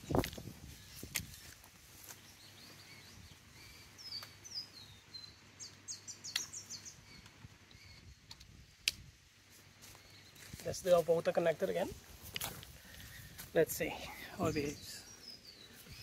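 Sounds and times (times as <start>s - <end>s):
bird chirping: 0.0s - 8.4s, 13.0s - 16.0s.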